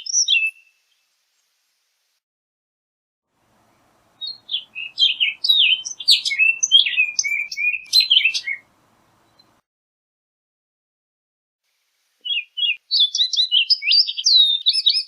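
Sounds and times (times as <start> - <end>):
oriole singing: 3.6 - 9.6.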